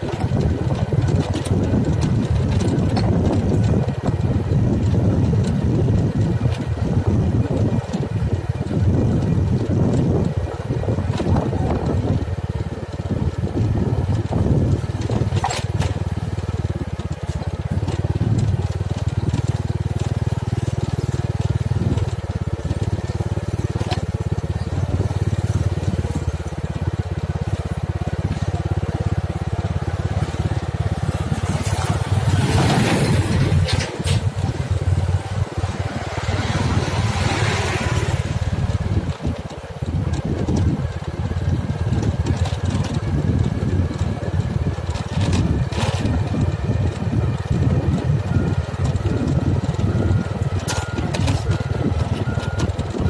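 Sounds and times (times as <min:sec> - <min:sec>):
heavy machinery engine running: 0:00.0 - 0:53.0
dirt and stone crunching: 0:14.8 - 0:53.0.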